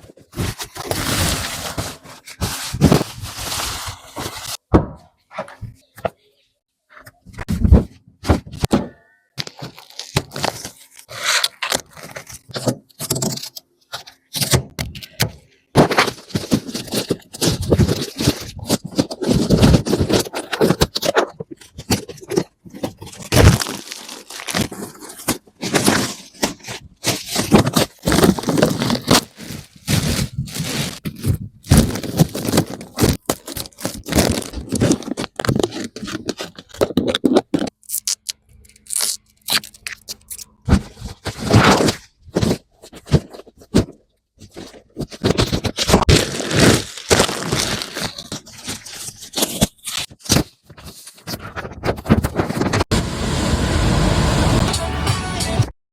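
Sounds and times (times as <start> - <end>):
plastic film peeling and tearing: 23.0 - 26.4, 37.7 - 40.5, 45.5 - 50.2.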